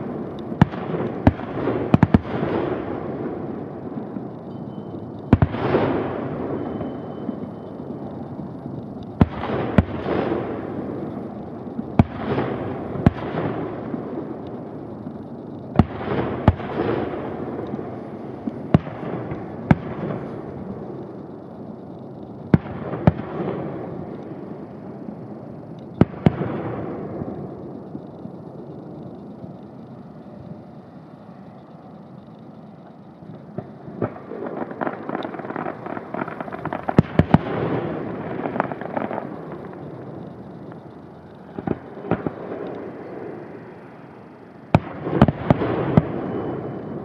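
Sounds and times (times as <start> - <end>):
fireworks bangs: 0.0 - 47.0
rolling rumble: 0.0 - 47.0.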